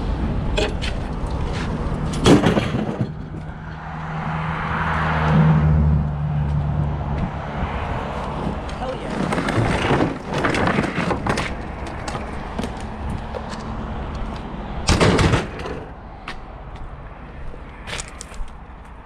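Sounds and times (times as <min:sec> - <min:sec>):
loud rattling and clattering: 0:02.1 - 0:03.5, 0:08.5 - 0:13.0, 0:14.9 - 0:16.0.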